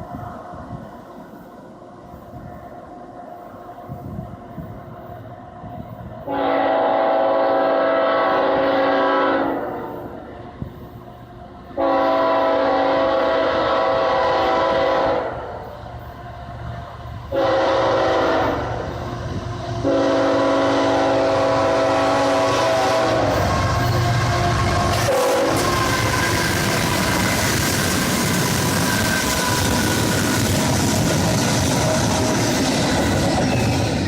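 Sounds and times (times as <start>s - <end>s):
low train rumble: 0.0s - 34.0s
locomotive air horn blasts: 6.3s - 10.1s, 11.8s - 15.6s, 17.3s - 30.6s.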